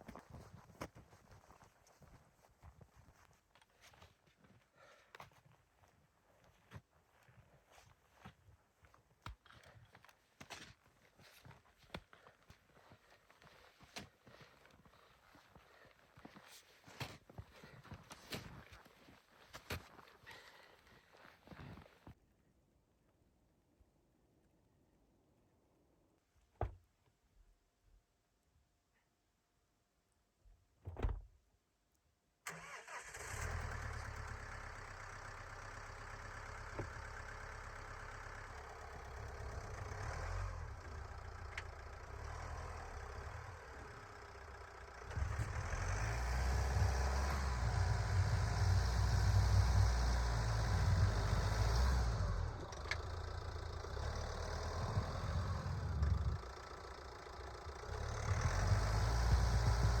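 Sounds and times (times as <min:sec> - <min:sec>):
vehicle engine running: 0:33.2 - 1:00.0.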